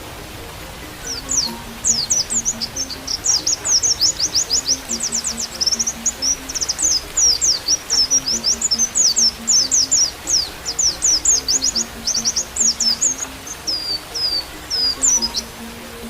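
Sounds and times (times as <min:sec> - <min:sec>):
bird twittering song: 0:00.0 - 0:16.0
soft flute melody: 0:00.0 - 0:16.0.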